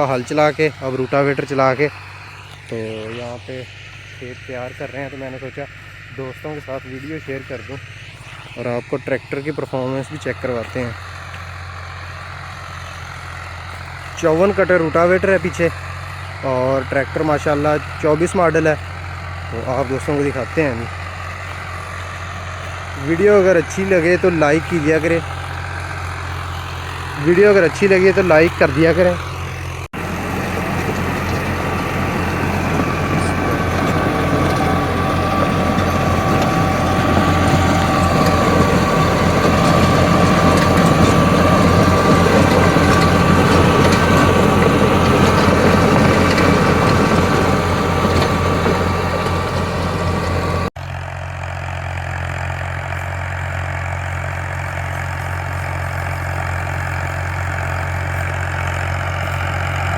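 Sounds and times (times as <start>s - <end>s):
tractor diesel engine under load: 0.0s - 59.9s
rotavator churning soil: 6.5s - 50.7s.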